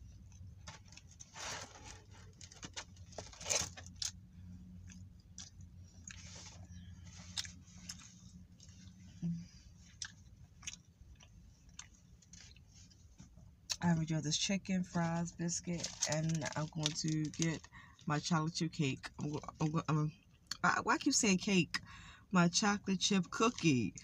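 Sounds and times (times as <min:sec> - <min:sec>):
steady low hum: 0:00.0 - 0:24.0
crunchy chewing and biting: 0:04.8 - 0:09.0, 0:09.9 - 0:12.7.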